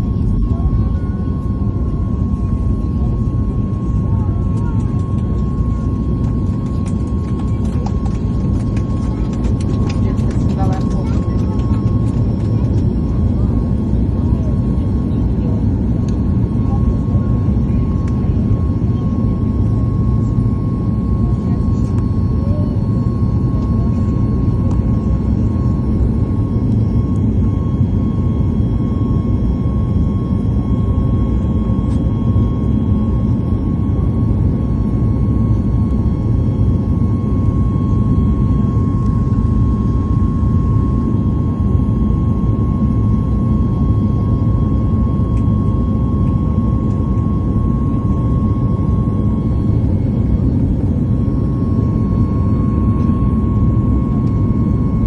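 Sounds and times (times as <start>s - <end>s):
airliner jet engines droning: 0.0s - 55.0s.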